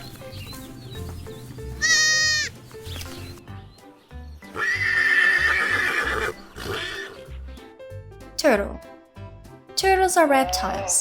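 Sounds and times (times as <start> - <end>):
pony neighing: 1.8 - 2.5, 4.5 - 7.3
background music with steady beat: 6.4 - 11.0.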